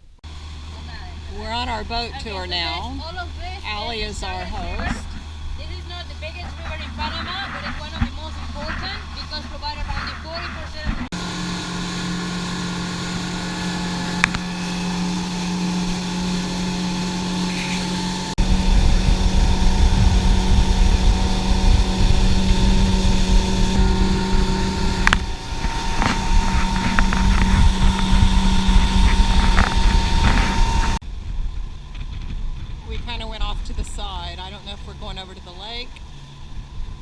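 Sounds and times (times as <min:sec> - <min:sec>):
boat engine humming: 0:00.0 - 0:37.0
loud low rumble: 0:13.0 - 0:37.0.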